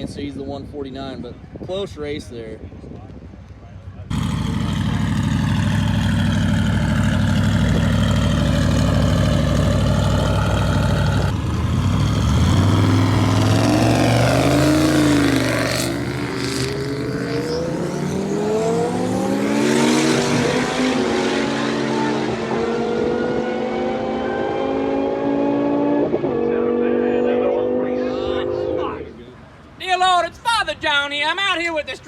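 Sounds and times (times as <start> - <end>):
car engines droning: 4.0 - 29.9
engine revving up: 4.1 - 29.0
cars accelerating hard: 4.1 - 29.1.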